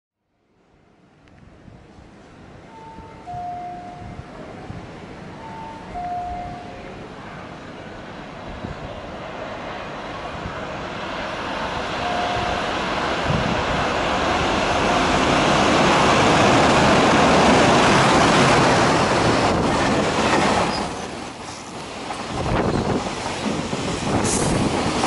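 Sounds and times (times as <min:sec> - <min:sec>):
electric locomotive passing: 0:02.0 - 0:25.0
train wheels on rail: 0:07.6 - 0:25.0.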